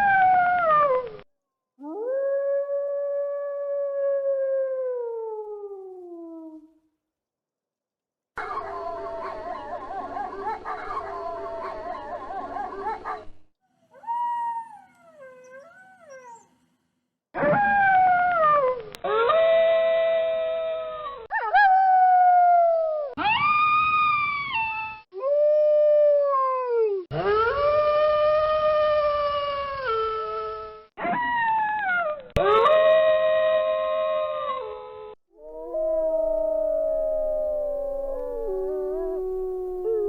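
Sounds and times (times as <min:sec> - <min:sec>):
wolves howling: 0:35.4 - 0:40.0.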